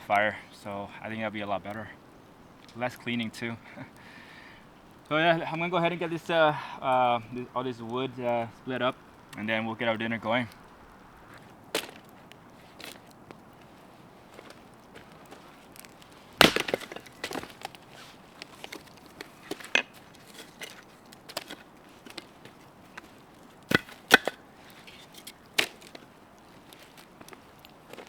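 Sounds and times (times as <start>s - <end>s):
firewood chops and cracks: 10.4s - 28.0s.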